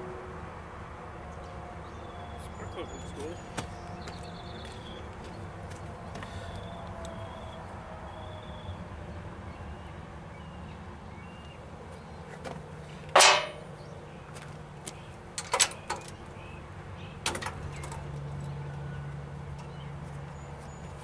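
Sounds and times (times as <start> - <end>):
hand tools clanking on engine: 13.1 - 13.7.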